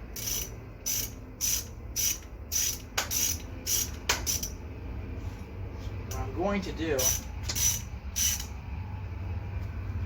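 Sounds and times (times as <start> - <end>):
ratchet wrench clicking: 0.1 - 4.6, 7.0 - 8.6.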